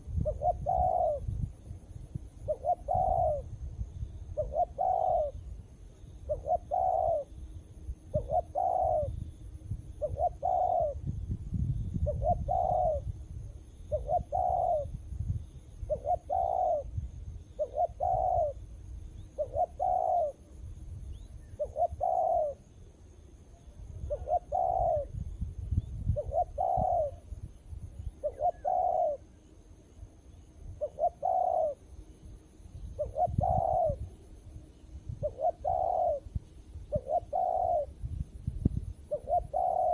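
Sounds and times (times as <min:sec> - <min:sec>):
dove cooing: 0:00.0 - 0:01.4, 0:02.4 - 0:03.6, 0:04.3 - 0:05.5, 0:06.2 - 0:07.4, 0:08.1 - 0:09.2, 0:10.0 - 0:11.1, 0:12.0 - 0:13.1, 0:13.9 - 0:15.0, 0:15.8 - 0:18.6, 0:19.4 - 0:20.4, 0:21.4 - 0:22.7, 0:24.0 - 0:25.2, 0:26.1 - 0:27.3, 0:28.2 - 0:29.4, 0:30.8 - 0:31.9, 0:33.0 - 0:34.1, 0:35.1 - 0:38.0, 0:39.0 - 0:39.9.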